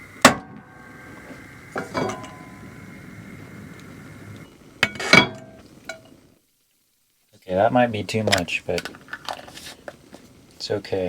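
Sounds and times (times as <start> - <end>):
utensil clinking against glass and cookware: 1.8 - 2.4.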